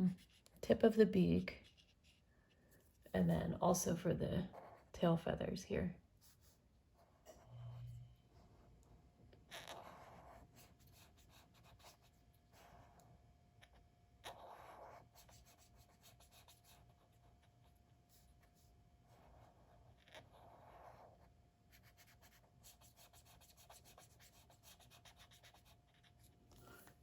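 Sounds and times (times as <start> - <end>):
faint steady hum: 0.0 - 27.0
colouring strokes on paper: 0.1 - 0.6, 9.5 - 13.1, 13.7 - 27.0.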